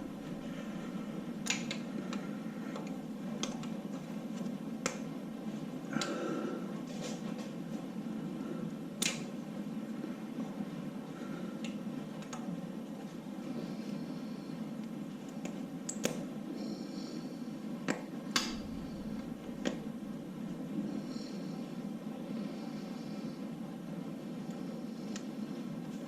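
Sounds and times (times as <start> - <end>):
steady low hum: 0.0 - 26.0
metallic clicks and taps: 1.4 - 3.8.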